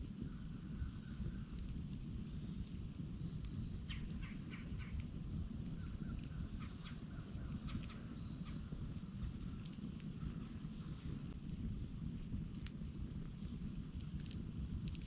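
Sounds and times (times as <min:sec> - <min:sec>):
campfire crackling: 0:00.0 - 0:15.0
low rumble: 0:00.0 - 0:15.0.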